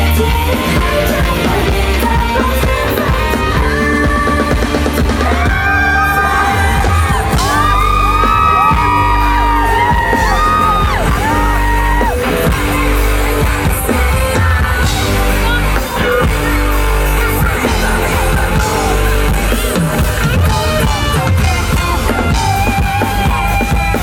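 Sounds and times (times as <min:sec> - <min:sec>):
live pop music with singing: 0:00.0 - 0:24.0.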